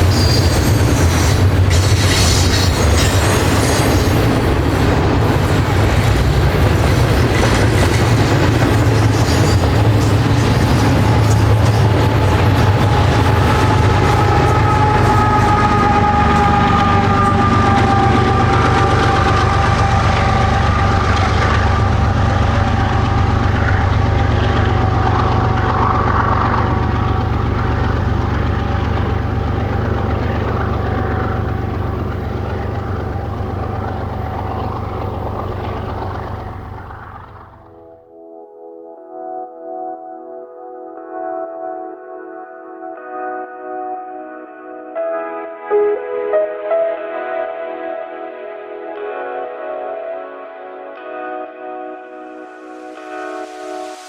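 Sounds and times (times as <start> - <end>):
freight train rumbling past: 0.0 - 38.0
sustained high tone sagging in pitch: 11.1 - 37.6.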